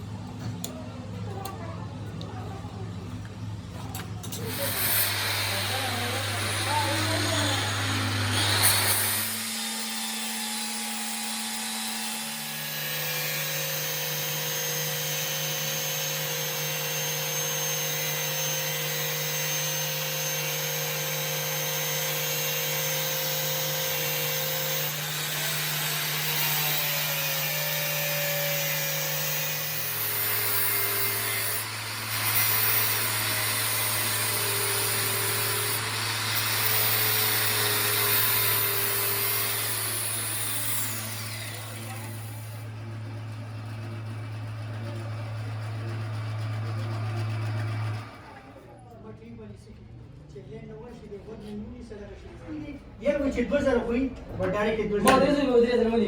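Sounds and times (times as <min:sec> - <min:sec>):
machine motor hum: 0:02.9 - 0:19.5
workshop machine cutting hiss: 0:04.2 - 0:42.7.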